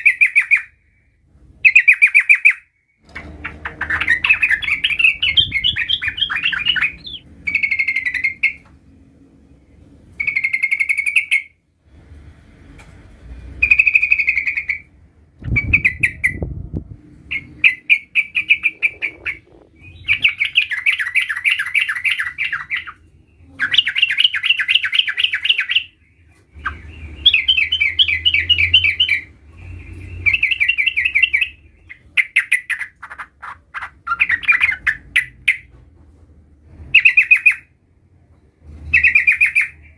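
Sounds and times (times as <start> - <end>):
bird chattering trills: 3.4 - 8.6, 17.3 - 26.0.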